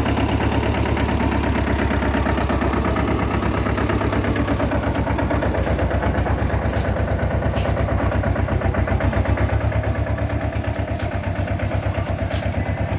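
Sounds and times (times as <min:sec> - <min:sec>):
tractor engine running: 0:00.0 - 0:12.9.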